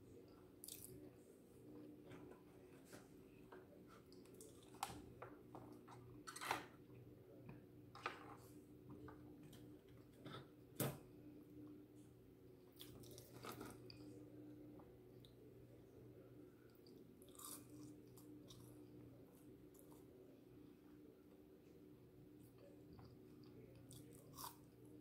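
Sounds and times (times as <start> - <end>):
faint steady hum: 0.0 - 25.0
person chewing food: 16.8 - 18.7, 23.0 - 24.7.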